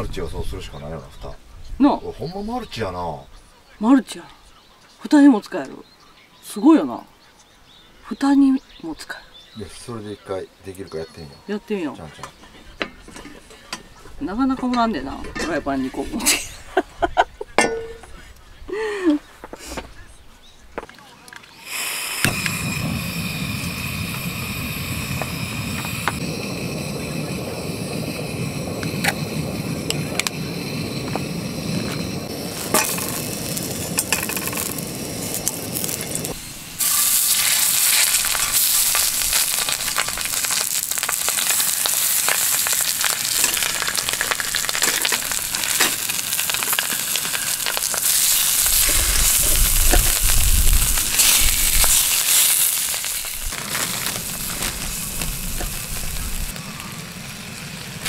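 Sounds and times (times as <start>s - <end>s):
camp stove burner rushing: 21.5s - 58.0s
fish and potatoes sizzling in oil: 21.5s - 58.0s
tongs turning food: 32.6s - 56.2s.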